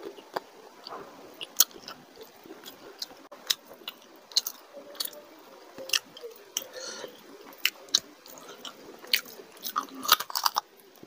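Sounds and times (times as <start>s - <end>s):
chewing and biting food: 7.5s - 10.7s.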